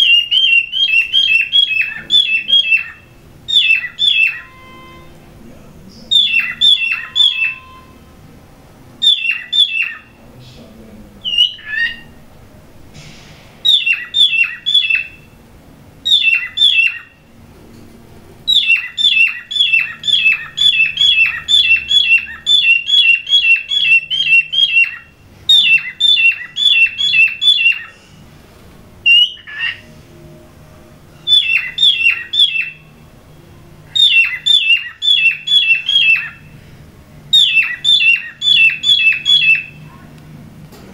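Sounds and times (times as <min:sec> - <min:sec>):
cockatiel squawking: 0:00.0 - 0:04.8, 0:06.1 - 0:08.0, 0:09.0 - 0:10.2, 0:11.2 - 0:12.2, 0:13.6 - 0:15.3, 0:16.0 - 0:17.2, 0:18.5 - 0:28.0, 0:29.1 - 0:29.9, 0:31.3 - 0:32.8, 0:34.0 - 0:36.5, 0:37.3 - 0:39.8.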